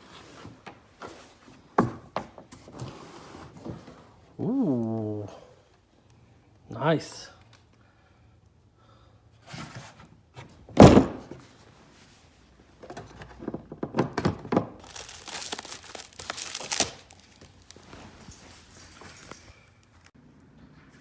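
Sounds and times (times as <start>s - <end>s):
plastic wrapping crinkling: 14.8s - 20.1s.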